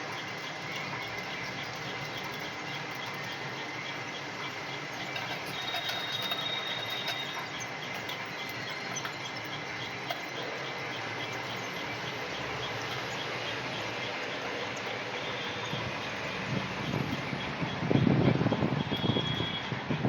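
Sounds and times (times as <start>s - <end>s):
lathe grinding: 0.0s - 19.9s
light regular ticking: 0.0s - 20.0s
faint high whine: 10.2s - 20.0s.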